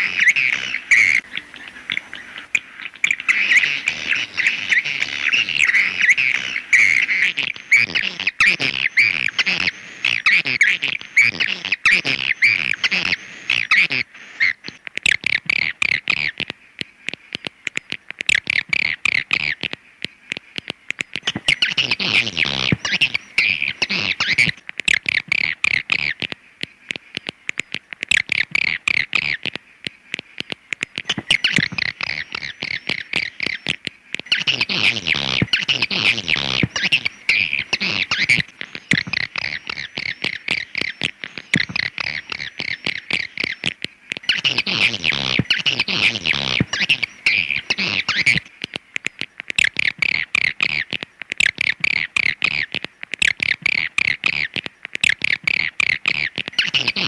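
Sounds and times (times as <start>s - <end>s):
swiftlets twittering: 30.4s - 57.0s.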